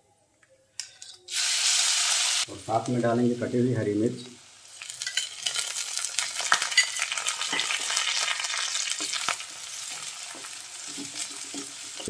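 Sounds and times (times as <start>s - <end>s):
food sizzling in hot oil: 1.3s - 12.0s
wooden spatula scraping a pan: 9.8s - 12.0s.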